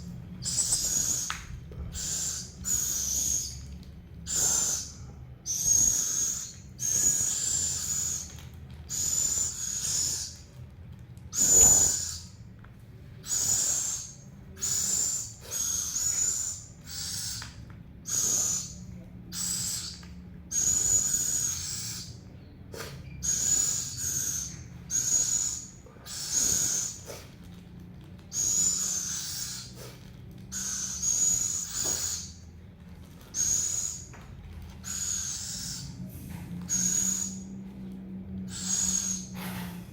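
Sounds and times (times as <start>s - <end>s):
owl hissing begging calls: 0.4s - 8.3s, 8.9s - 10.5s, 11.3s - 12.4s, 13.2s - 17.4s, 18.1s - 22.2s, 22.8s - 27.3s, 28.3s - 32.4s, 33.3s - 34.1s, 34.8s - 36.0s, 38.5s - 39.8s.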